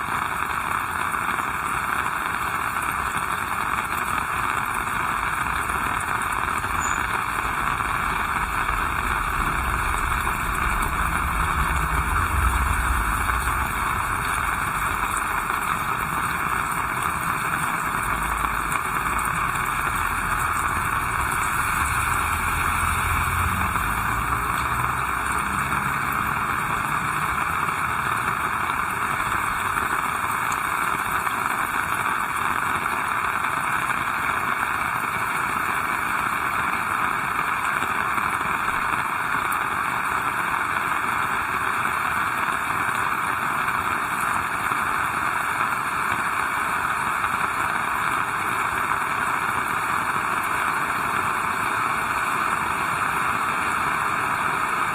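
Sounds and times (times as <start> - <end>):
heavy rain falling: 0.0 - 54.9
low rumble: 4.8 - 30.1.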